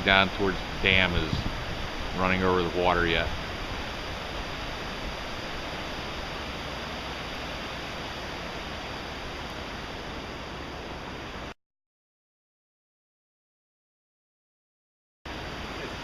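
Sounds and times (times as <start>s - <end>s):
floodwater rushing over road: 0.0s - 11.5s, 15.3s - 16.0s.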